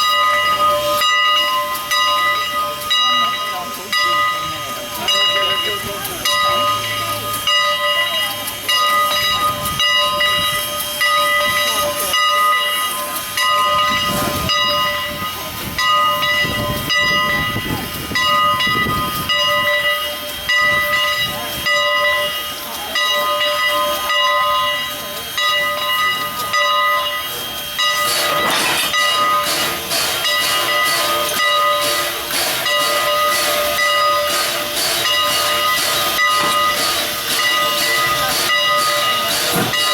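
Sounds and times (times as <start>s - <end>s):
loud rush of steam: 27.2s - 39.9s.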